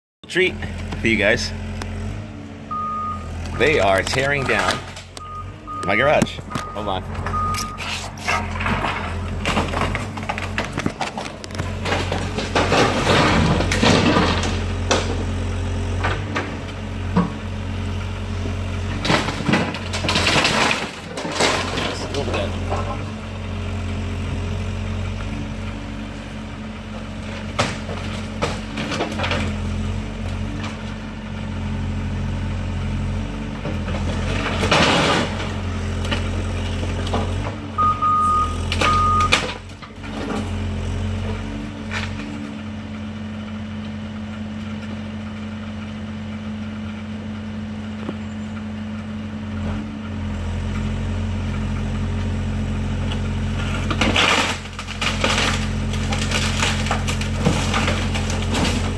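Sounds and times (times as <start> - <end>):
excavator diesel engine running: 0.2 - 58.9
reversing alarm beeps: 2.7 - 3.8, 5.2 - 7.9, 37.8 - 39.4
structure crashing and crunching: 3.6 - 23.7, 25.0 - 31.7, 32.4 - 42.6, 52.0 - 58.9.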